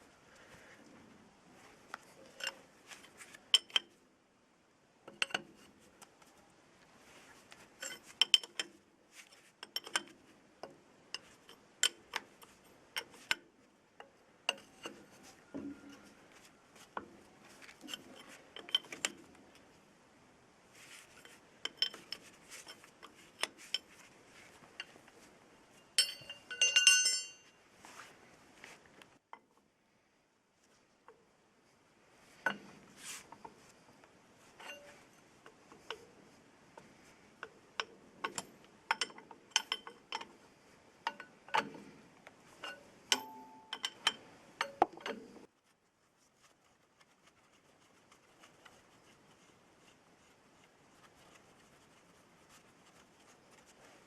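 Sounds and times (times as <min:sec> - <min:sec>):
metal tools clinking and knocking: 0:07.8 - 0:08.8, 0:09.6 - 0:10.1, 0:17.8 - 0:19.3, 0:21.2 - 0:24.0, 0:25.8 - 0:27.6, 0:34.6 - 0:35.2, 0:37.8 - 0:40.3, 0:42.6 - 0:45.4
ringing metallic rattle: 0:26.0 - 0:27.5.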